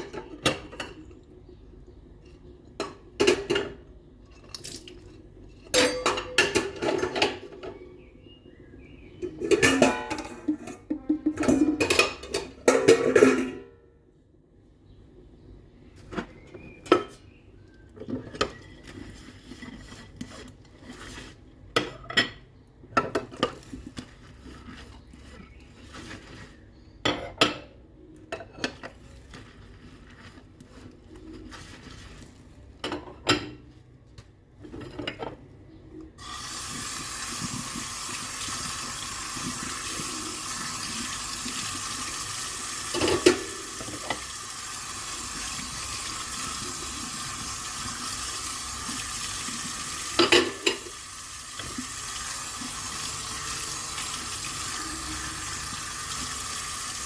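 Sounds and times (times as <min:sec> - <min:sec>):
dishes and cutlery clinking: 0:05.6 - 0:07.8, 0:09.2 - 0:13.8, 0:50.2 - 0:50.9
tap water running into sink: 0:36.2 - 0:57.0.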